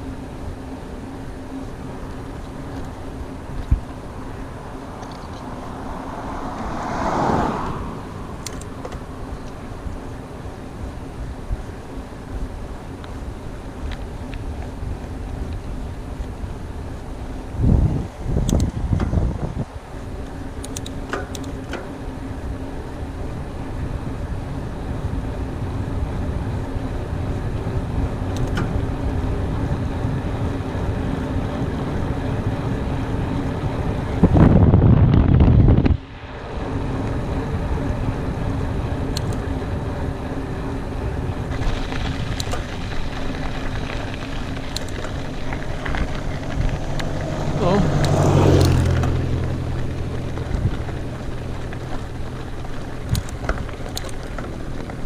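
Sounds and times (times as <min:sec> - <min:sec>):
bike clicks and rattles: 0:00.0 - 0:05.6, 0:08.3 - 0:22.0, 0:27.2 - 0:29.6, 0:39.1 - 0:39.6, 0:41.2 - 0:55.0
bike tyres on dirt trail: 0:00.0 - 0:55.0
wind rushing over microphone: 0:03.2 - 0:11.8, 0:14.1 - 0:20.2, 0:22.4 - 0:55.0.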